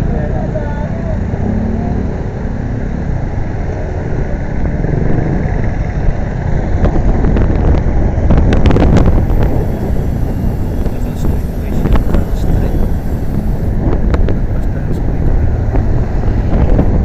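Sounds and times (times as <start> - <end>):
motorcycle road noise: 0.0 - 17.0
wind buffeting microphone: 4.5 - 17.0
sharp ticks: 8.7 - 16.7.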